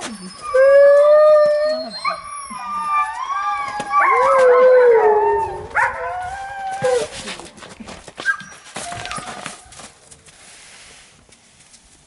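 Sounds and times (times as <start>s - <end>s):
dogs howling together: 0.4s - 7.1s.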